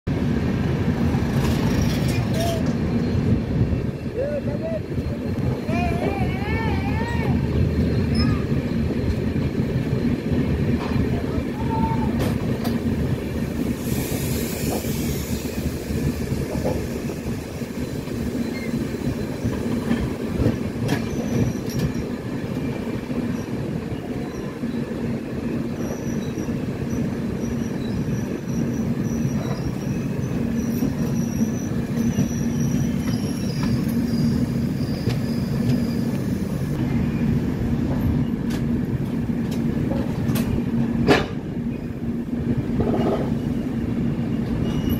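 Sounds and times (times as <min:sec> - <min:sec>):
train wheels rumbling on rails: 0:00.1 - 0:44.9
faint high wheel squeal: 0:01.7 - 0:08.8, 0:16.8 - 0:20.0, 0:21.0 - 0:37.3, 0:42.9 - 0:44.9
clicks at rail joints: 0:38.4 - 0:41.4.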